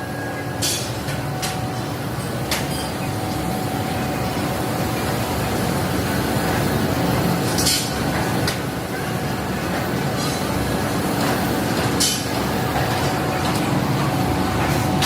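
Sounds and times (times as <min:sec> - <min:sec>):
factory machinery rumble: 0:00.0 - 0:15.0.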